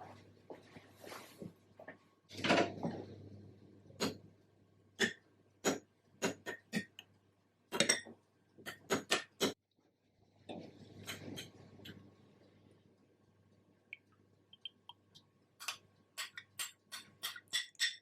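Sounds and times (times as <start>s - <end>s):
dishes and utensils clinking: 15.6s - 18.0s.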